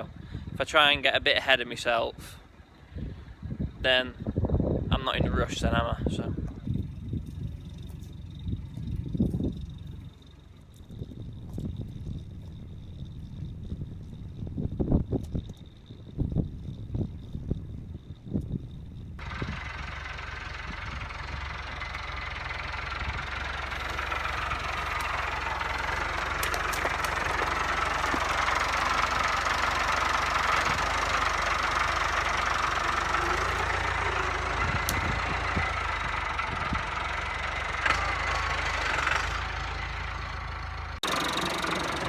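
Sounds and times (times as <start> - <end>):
diesel engine running: 5.0 - 15.1, 18.7 - 42.0.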